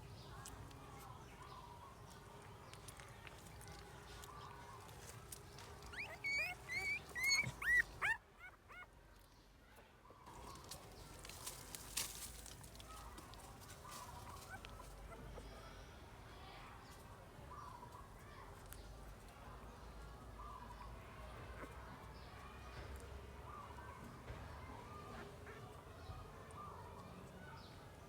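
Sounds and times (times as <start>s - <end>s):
puppies whimpering: 5.5s - 8.9s, 13.9s - 15.6s.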